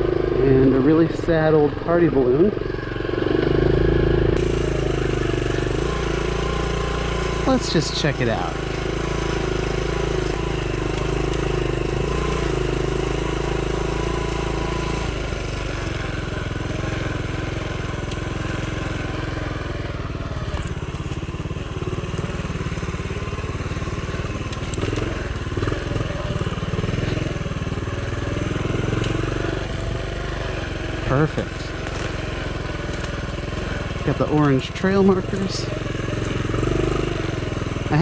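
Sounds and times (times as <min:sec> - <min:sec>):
minibike engine running: 0:00.0 - 0:38.0.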